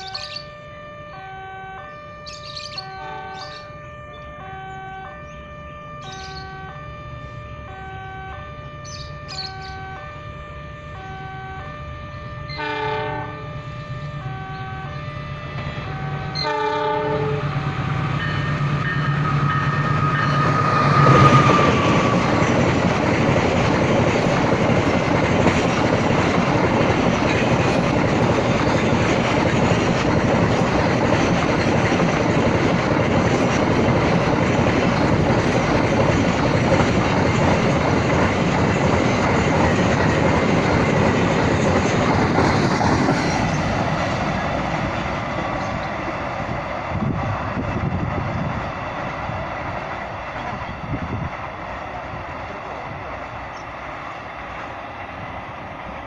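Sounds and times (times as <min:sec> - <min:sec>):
train horn: 0:00.0 - 0:22.3
wagons rumbling on rails: 0:01.4 - 0:56.0.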